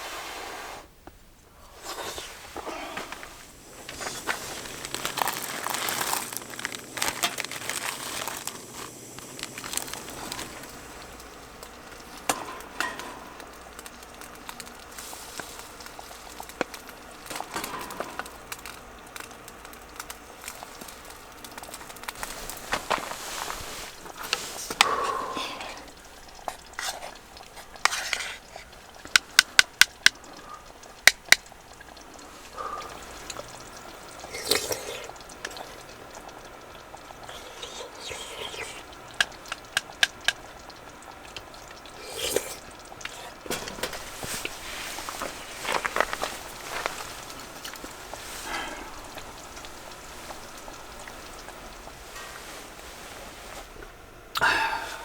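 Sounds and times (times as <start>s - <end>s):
packaging crinkling and rustling: 1.9s - 13.0s, 13.6s - 24.8s, 42.2s - 53.8s.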